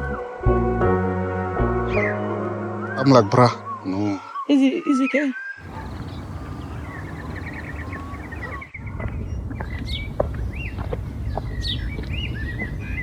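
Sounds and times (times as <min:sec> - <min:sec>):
birds calling and singing: 0:03.0 - 0:13.0
steady low rumble: 0:05.6 - 0:13.0.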